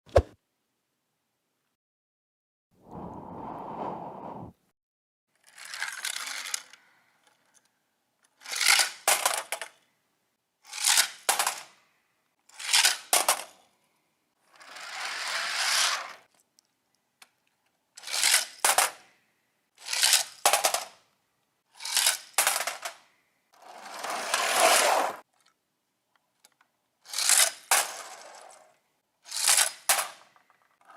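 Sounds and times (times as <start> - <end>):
toy cars rolling down plastic slide: 5.4 - 9.8, 10.7 - 11.8, 12.5 - 13.6, 14.4 - 16.4, 18.0 - 19.2, 19.8 - 21.1, 21.7 - 25.6, 26.4 - 30.9.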